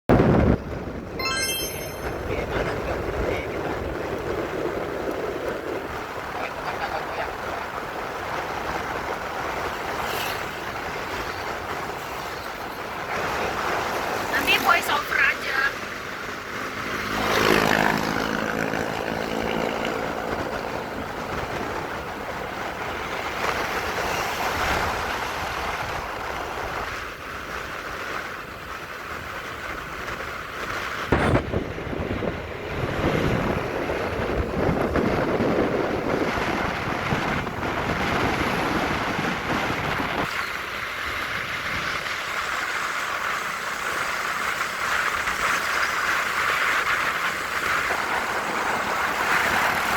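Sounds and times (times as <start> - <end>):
traffic noise: 0.1 - 49.9
wind rushing over microphone: 16.7 - 49.9.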